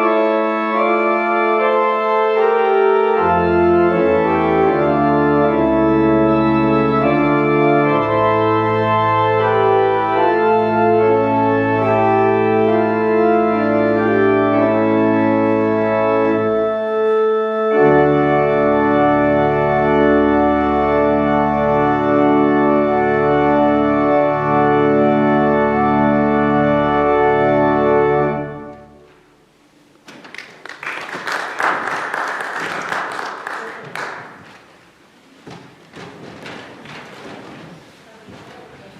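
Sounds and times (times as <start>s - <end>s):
organ playing full chords: 0.0s - 29.9s
dense crackling noise: 28.8s - 38.9s.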